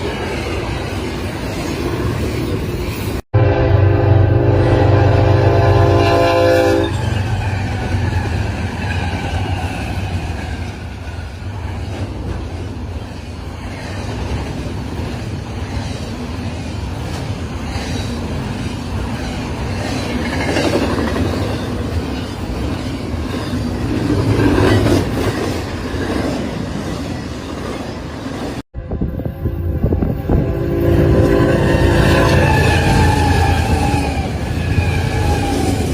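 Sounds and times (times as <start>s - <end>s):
passing train rumble: 0.0s - 35.9s
train horn chord: 3.4s - 7.0s, 28.8s - 33.1s.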